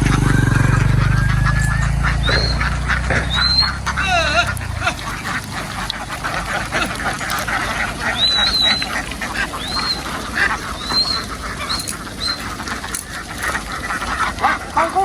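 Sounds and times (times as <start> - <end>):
thin high-pitched calls: 0.0 - 13.4
flock of ducks quacking: 0.0 - 15.0.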